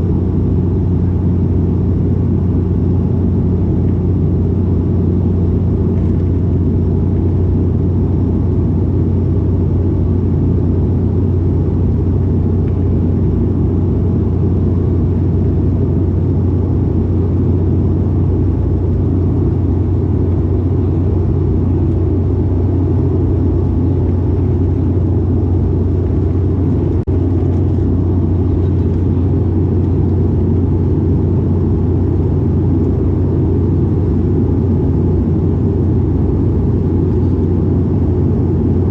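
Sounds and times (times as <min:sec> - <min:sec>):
propeller plane cabin drone: 0:00.0 - 0:38.9.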